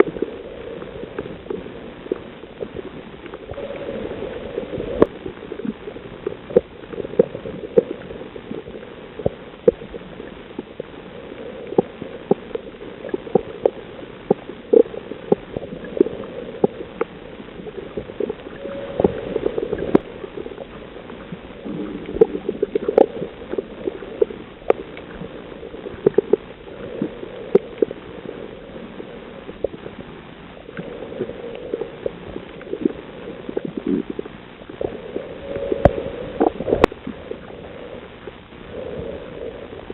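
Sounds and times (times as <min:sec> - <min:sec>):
muffled underwater wash: 0:00.0 - 0:39.9
sharp clicks and pops: 0:05.0 - 0:10.9, 0:11.7 - 0:28.0
gurgling swell: 0:18.2 - 0:24.2, 0:34.8 - 0:39.7.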